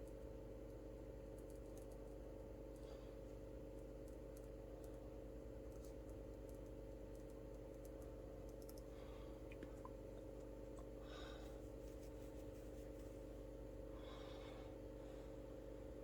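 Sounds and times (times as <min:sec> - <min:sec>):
low electrical hum: 0:00.0 - 0:16.0
faint light clicks: 0:03.8 - 0:05.0, 0:05.7 - 0:08.9.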